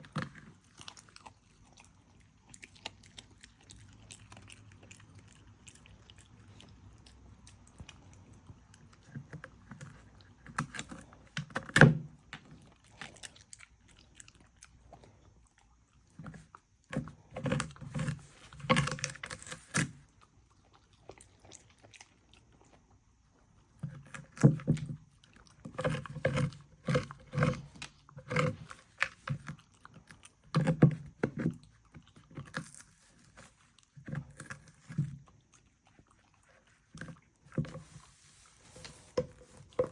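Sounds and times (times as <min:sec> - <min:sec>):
dog chewing and crunching food: 0:00.0 - 0:39.9.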